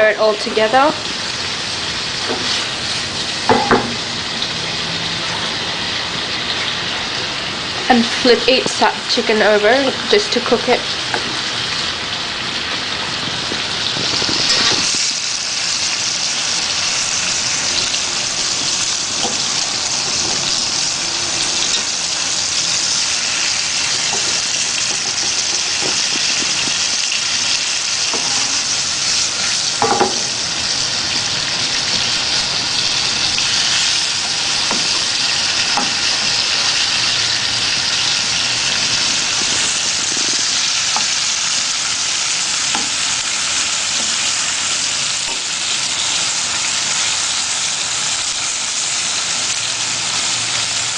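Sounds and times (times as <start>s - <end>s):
chicken sizzling in hot oil: 0.0s - 50.9s
utensil knocking against pan: 3.5s - 4.0s, 29.8s - 30.3s.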